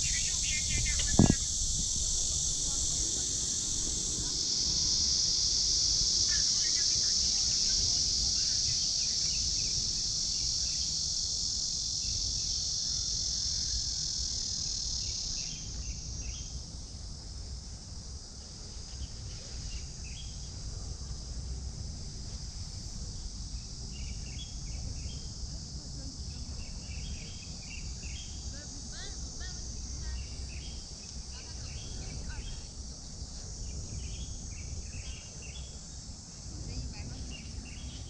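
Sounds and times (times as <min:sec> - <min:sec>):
bird chirps: 0:00.0 - 0:01.5
insects buzzing: 0:00.0 - 0:38.0.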